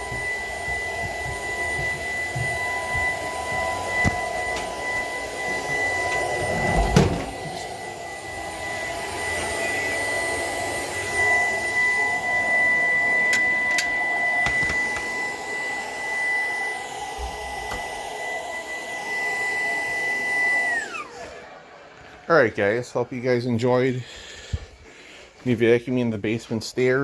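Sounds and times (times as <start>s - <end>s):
vacuum cleaner motor whine: 0.0s - 22.3s
thump: 6.7s - 7.6s.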